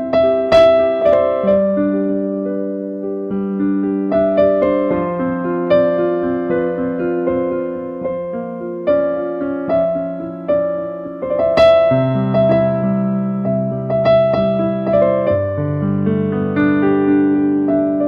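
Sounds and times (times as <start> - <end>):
slow piano chords and melody: 0.0 - 18.0.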